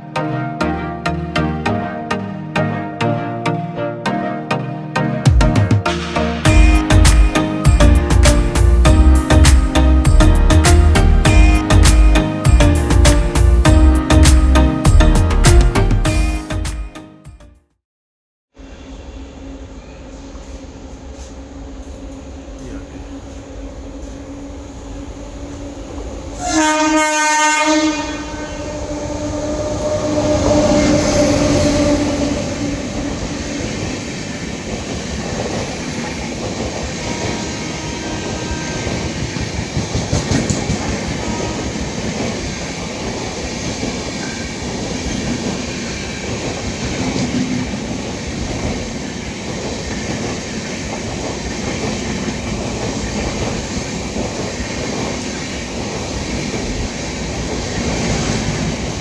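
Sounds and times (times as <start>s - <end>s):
train coaches rumbling past: 5.8s - 16.7s, 18.6s - 59.0s
locomotive horn blaring: 26.4s - 34.4s, 37.1s - 39.2s.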